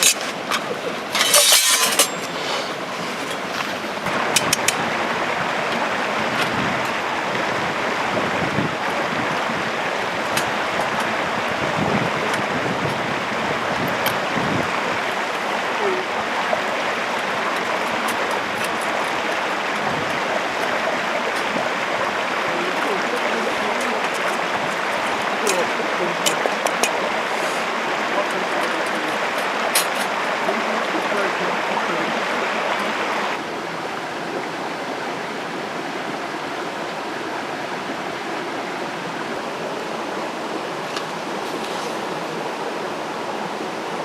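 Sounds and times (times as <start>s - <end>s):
steady outdoor rushing noise: 0.0s - 44.0s.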